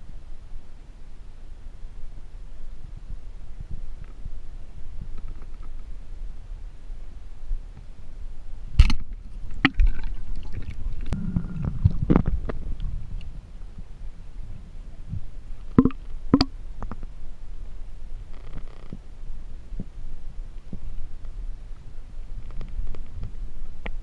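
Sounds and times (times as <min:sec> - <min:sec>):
low underwater rumble: 0:08.8 - 0:17.2.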